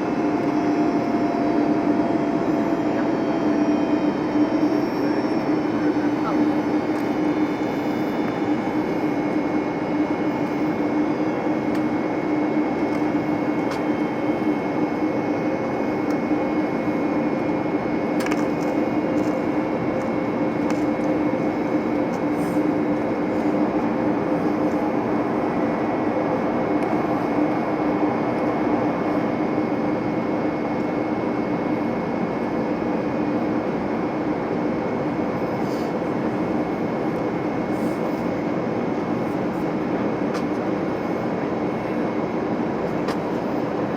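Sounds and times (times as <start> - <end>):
airliner cabin drone: 0.0 - 43.9.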